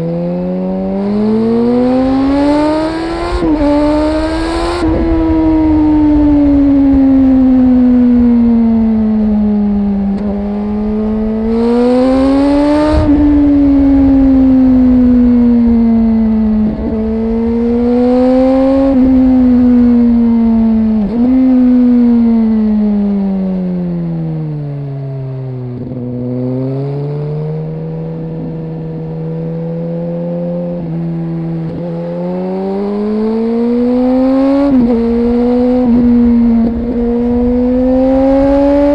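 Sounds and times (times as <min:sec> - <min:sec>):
motorcycle engine accelerating: 0:00.0 - 0:38.9
wind rushing over microphone: 0:00.8 - 0:23.6, 0:32.8 - 0:38.9.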